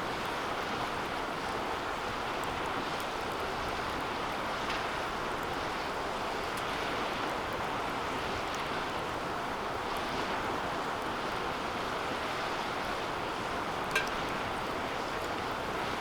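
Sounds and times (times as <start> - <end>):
wood fire hissing and crackling: 0.0 - 16.0
metallic ping of fire pit: 13.9 - 14.5.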